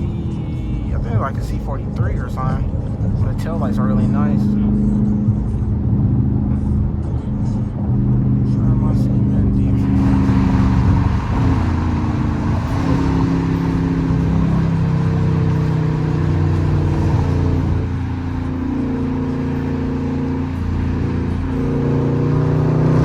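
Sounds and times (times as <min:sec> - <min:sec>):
car exhaust droning: 0:00.0 - 0:23.0.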